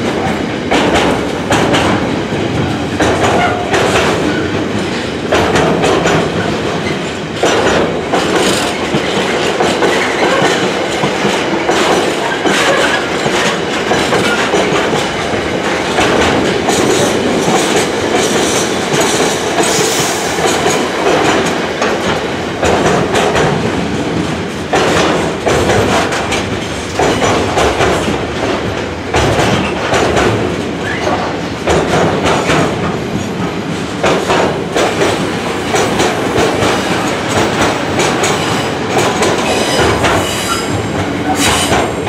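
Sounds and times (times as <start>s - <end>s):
train wheels on rails: 0.0s - 42.0s
clickety-clack of wheelsets: 3.0s - 19.8s, 24.2s - 40.3s.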